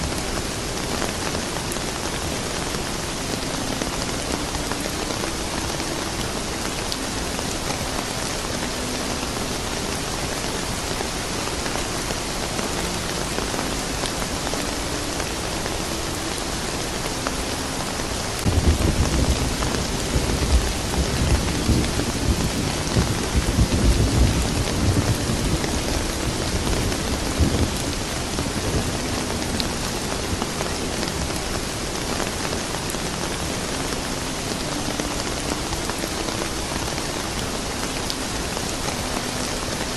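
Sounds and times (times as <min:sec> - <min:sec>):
steady rain: 0:00.0 - 0:39.9
thunder rumbling: 0:18.4 - 0:33.6.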